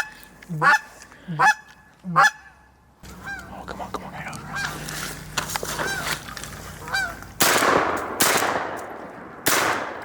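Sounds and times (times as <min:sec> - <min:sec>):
geese honking: 0:00.0 - 0:07.3
shotgun shots: 0:07.4 - 0:10.0.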